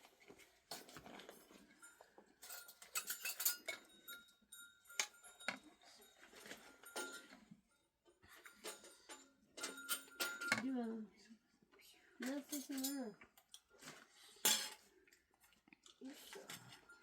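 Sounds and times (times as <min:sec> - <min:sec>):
metal utensils clinking on dishes: 0:00.7 - 0:07.6, 0:08.2 - 0:10.8, 0:12.2 - 0:14.9, 0:15.9 - 0:17.0.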